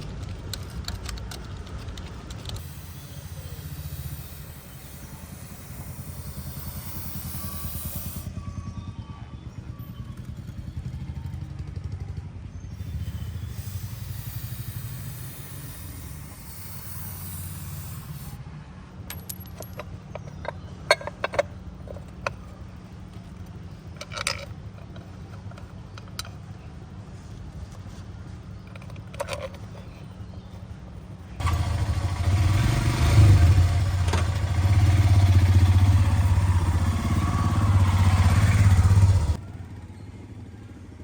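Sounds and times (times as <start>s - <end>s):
sharp clicks and knocks: 0.0s - 2.8s, 19.1s - 22.5s
vehicle engine rumble: 0.0s - 41.0s.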